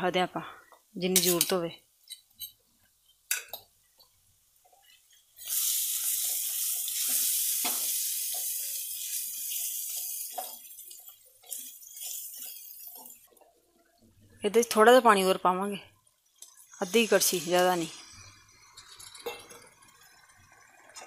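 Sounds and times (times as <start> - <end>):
masala sizzling in oil: 0.8 - 21.0.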